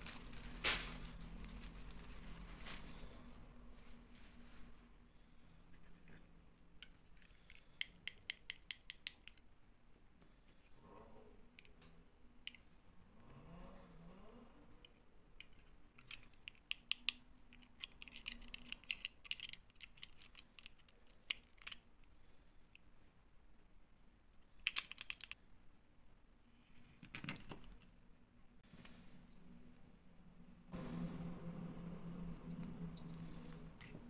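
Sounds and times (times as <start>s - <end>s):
plastic toys clicking: 6.8s - 9.5s, 14.8s - 22.1s, 24.5s - 25.4s.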